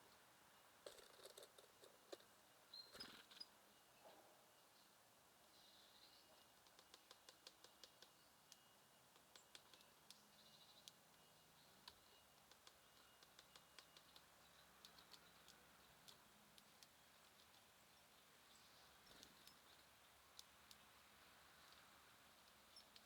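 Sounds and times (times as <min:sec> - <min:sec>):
birds clicking: 0:06.5 - 0:23.0.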